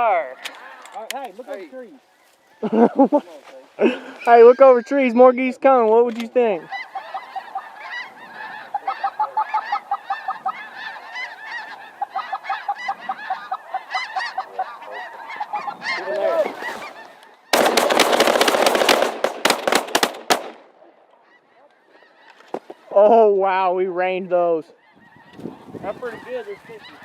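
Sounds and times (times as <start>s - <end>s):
geese honking: 0.0s - 27.0s
shotguns firing: 17.5s - 21.2s.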